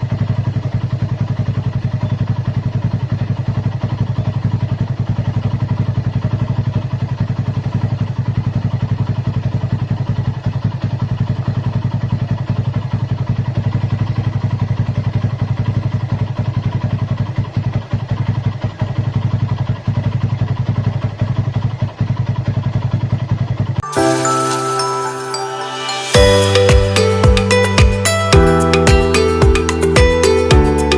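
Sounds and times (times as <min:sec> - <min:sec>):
small engine idling: 0:00.0 - 0:23.8.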